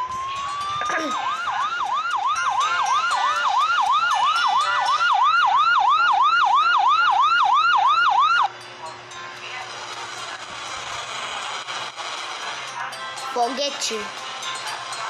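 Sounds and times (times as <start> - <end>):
ambulance siren yelping: 0.0 - 8.5.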